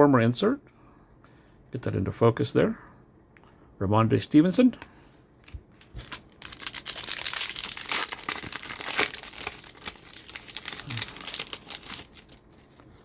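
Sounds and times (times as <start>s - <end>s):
wrapper tearing and crinkling: 5.4s - 13.0s.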